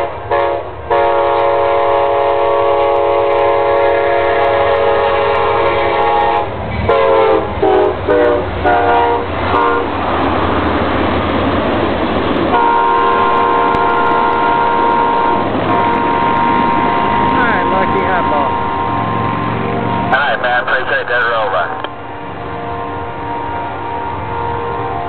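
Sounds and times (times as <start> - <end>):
train horn blasts: 0.0 - 10.0, 12.5 - 19.5, 22.4 - 25.0
rushing train noise: 0.0 - 25.0.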